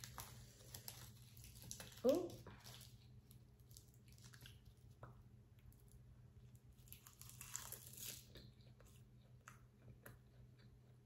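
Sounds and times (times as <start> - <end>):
chewing crisp seaweed: 6.6 - 11.0.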